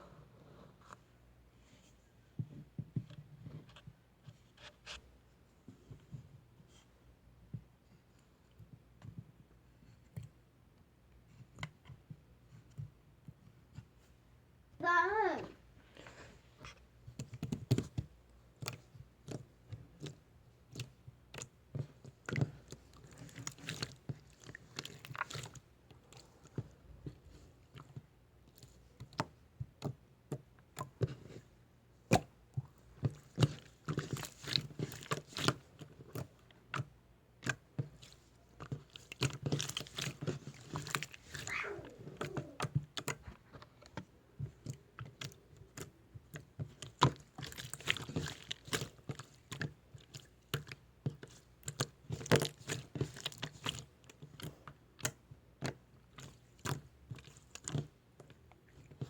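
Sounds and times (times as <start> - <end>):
slime squeezed by hand: 39.5 - 42.7.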